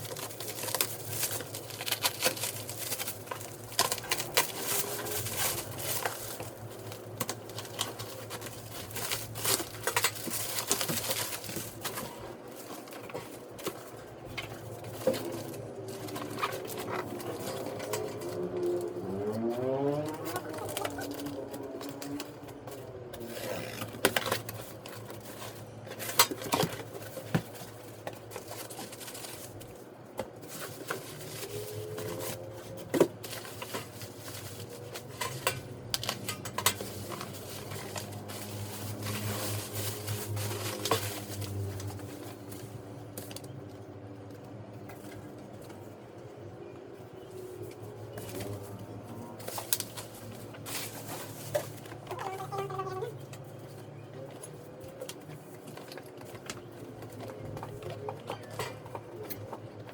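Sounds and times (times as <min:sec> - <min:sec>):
packaging rustling and clicking: 0:00.0 - 0:46.5, 0:47.4 - 0:59.9.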